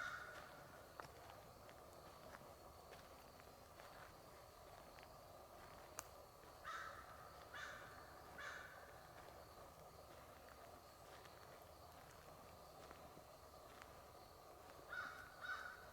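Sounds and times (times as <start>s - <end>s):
crow cawing: 0.0s - 0.5s, 6.6s - 8.9s, 14.9s - 15.9s.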